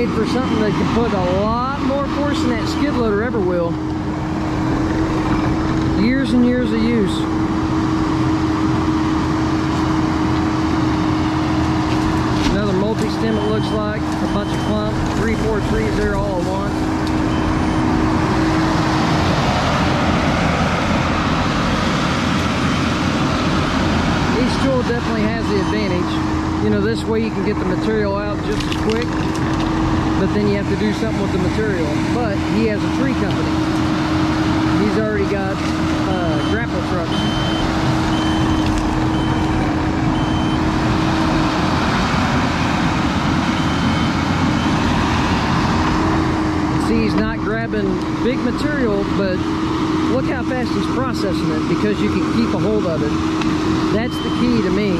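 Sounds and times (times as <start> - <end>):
reverse alarm beeping: 0.0 - 1.4, 12.6 - 18.1, 25.1 - 26.2, 36.1 - 40.8, 43.5 - 44.9, 53.9 - 54.9
diesel engine running under load: 0.0 - 54.9.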